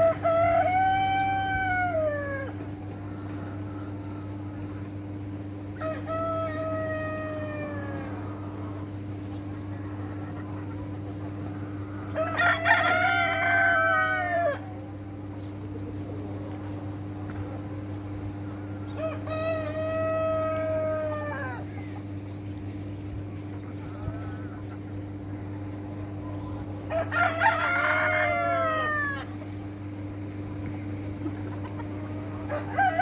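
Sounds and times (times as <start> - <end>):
rooster crowing: 0.0 - 2.5, 12.2 - 14.8, 19.0 - 21.6, 26.9 - 29.3, 32.5 - 33.0
steady low hum: 0.0 - 33.0.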